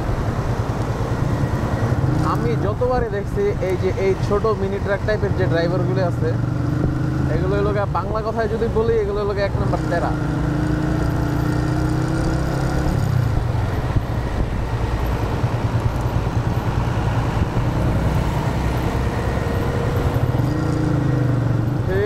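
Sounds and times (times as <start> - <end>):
rush of riding noise: 0.0 - 22.0
motorcycle engine running: 9.8 - 22.0.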